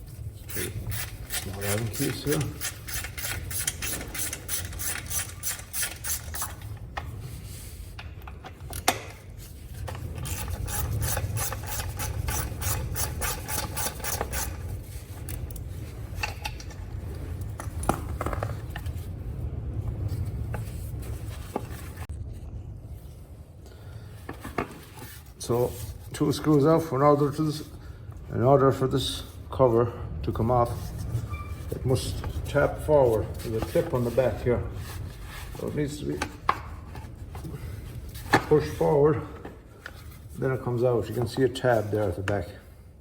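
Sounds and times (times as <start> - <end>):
tool scraping: 0.0 - 19.0, 30.7 - 42.4
ratchet clicking: 0.5 - 6.7, 10.2 - 14.6.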